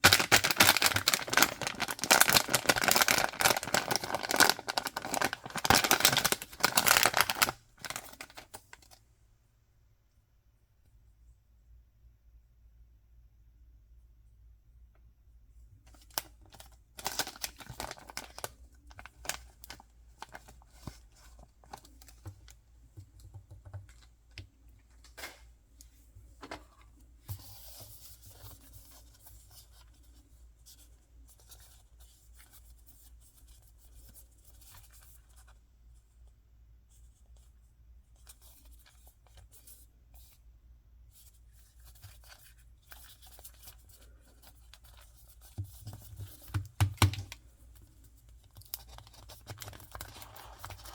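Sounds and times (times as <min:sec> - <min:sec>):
paper and plastic tearing: 0:00.0 - 0:08.5.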